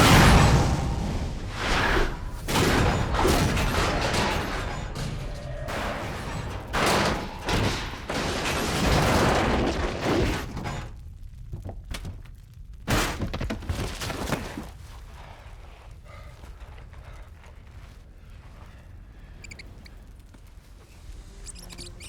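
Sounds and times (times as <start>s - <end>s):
heavy crashes and rumbles: 0.0s - 14.6s
debris impacts: 0.0s - 14.8s.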